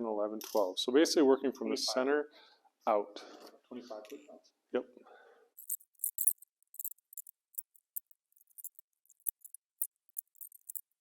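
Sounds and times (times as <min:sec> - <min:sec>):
torque wrench ratchet clicking: 0:05.6 - 0:11.0.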